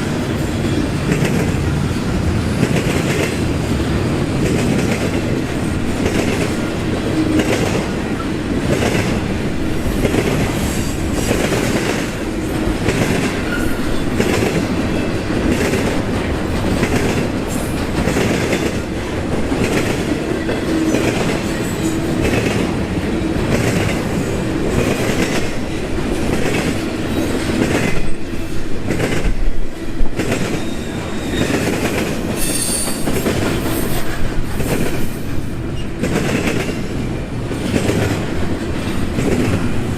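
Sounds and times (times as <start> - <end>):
train wheels clacking: 0.0 - 39.9
high metallic squeal: 32.4 - 33.1.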